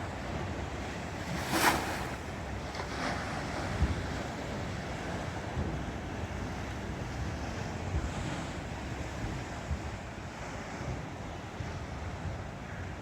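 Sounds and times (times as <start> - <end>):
steady surf: 0.8 - 3.9
waves crashing against wall: 0.8 - 4.4.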